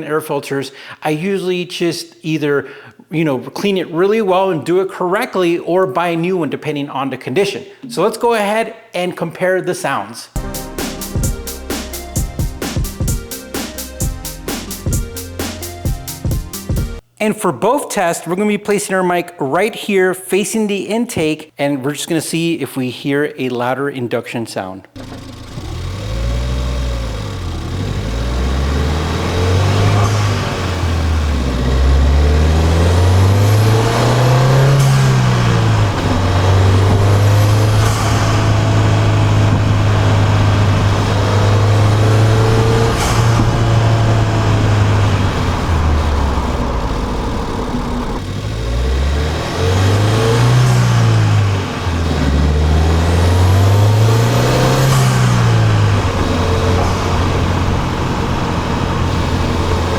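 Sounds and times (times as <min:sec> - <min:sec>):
car engine intake revving: 0:25.0 - 0:59.9.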